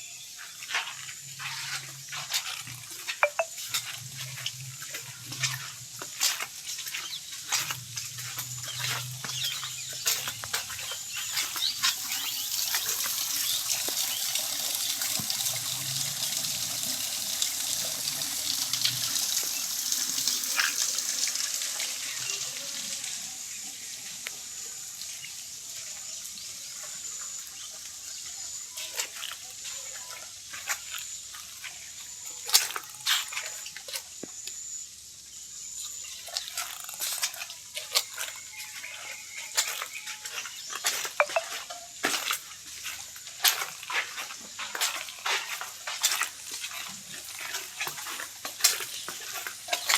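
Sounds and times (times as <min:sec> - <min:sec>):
water running and splashing: 0:00.3 - 0:34.0, 0:36.2 - 0:49.9
water drips: 0:00.6 - 0:23.0, 0:39.6 - 0:49.9.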